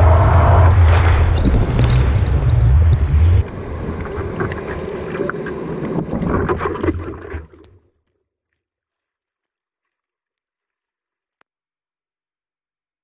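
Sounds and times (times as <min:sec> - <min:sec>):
wind buffeting microphone: 0:00.0 - 0:06.9
rushing ocean water: 0:00.1 - 0:07.8.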